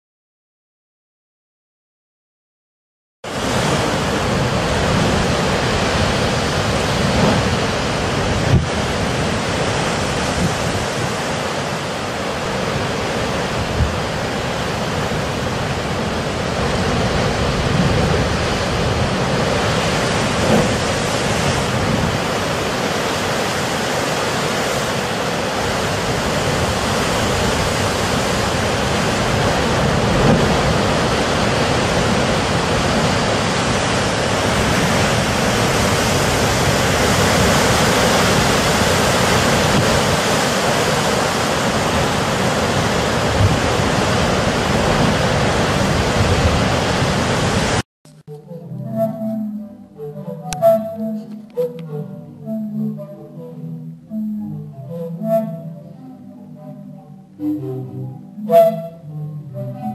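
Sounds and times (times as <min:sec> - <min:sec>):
surf rushing through blowholes: 0:03.3 - 0:47.8.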